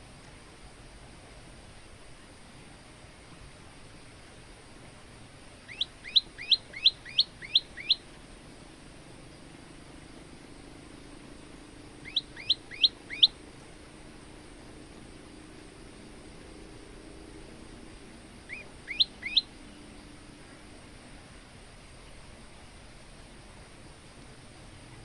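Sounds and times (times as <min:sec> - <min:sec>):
bird singing sweeping notes: 0:05.7 - 0:08.0, 0:12.0 - 0:13.4, 0:18.5 - 0:19.5.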